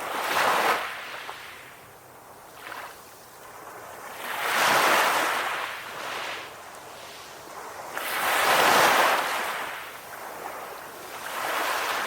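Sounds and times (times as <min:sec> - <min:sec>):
sea waves washing in: 0:00.0 - 0:12.0.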